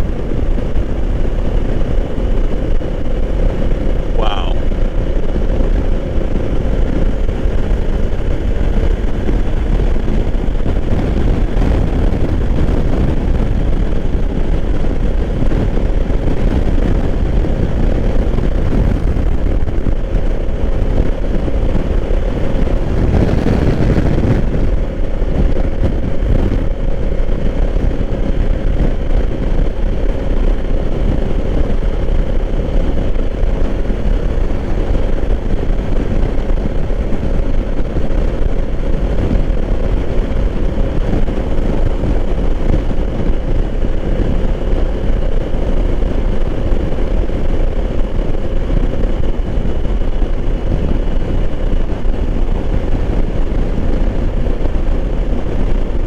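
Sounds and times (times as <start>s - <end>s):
motorcycle engine running: 0.0s - 56.0s
wind rush on microphone: 0.0s - 56.0s.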